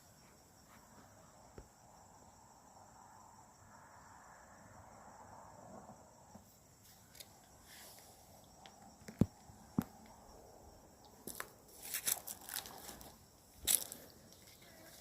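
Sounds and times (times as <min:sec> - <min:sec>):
insects droning: 0:00.0 - 0:15.0
footsteps crunching dry leaves: 0:11.2 - 0:14.1
twigs cracking: 0:11.2 - 0:15.0.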